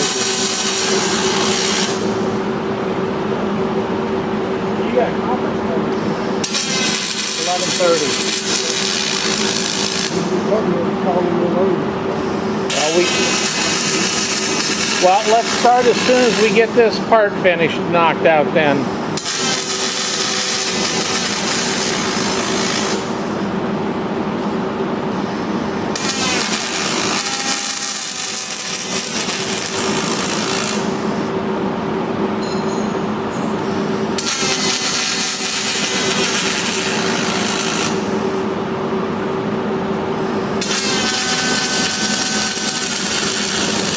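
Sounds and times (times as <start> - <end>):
welding arc hissing and crackling: 0.0 - 2.2, 6.0 - 10.4, 12.2 - 17.7, 18.7 - 23.3, 25.2 - 31.1, 33.6 - 38.4, 40.2 - 43.9
steady machine hum: 0.0 - 43.9.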